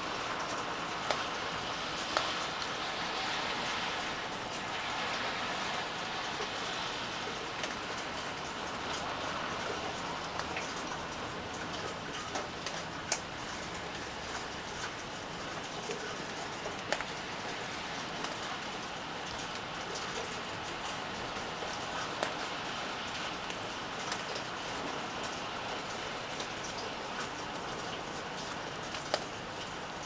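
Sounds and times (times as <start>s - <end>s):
steady rainfall hiss: 0.0s - 30.0s
sharp drips hitting a surface: 0.2s - 2.8s.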